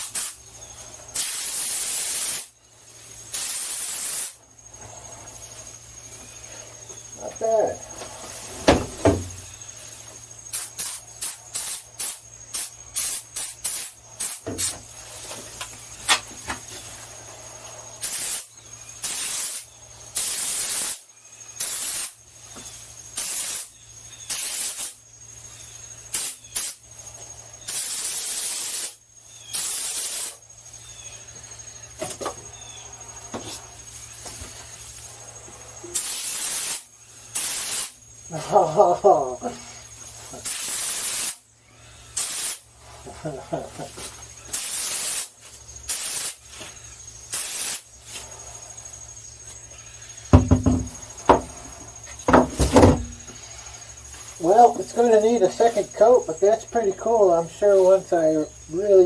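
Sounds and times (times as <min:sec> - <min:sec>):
spray foam gun hissing bursts: 0:00.0 - 0:00.5, 0:01.1 - 0:04.4, 0:07.4 - 0:15.6, 0:17.4 - 0:25.0, 0:26.0 - 0:26.9, 0:27.6 - 0:30.5, 0:33.0 - 0:38.7, 0:39.6 - 0:43.2, 0:44.0 - 0:55.8
sharp knock: 0:08.7 - 0:09.3, 0:50.3 - 0:51.5, 0:52.3 - 0:53.1.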